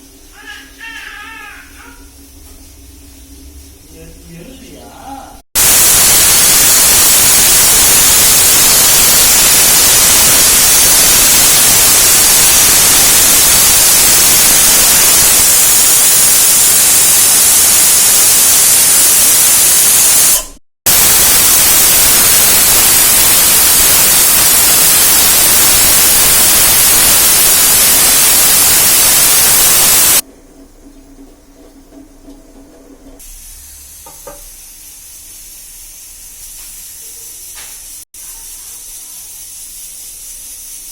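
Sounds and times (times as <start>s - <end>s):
loud steady hiss: 5.6s - 30.2s, 33.2s - 40.9s.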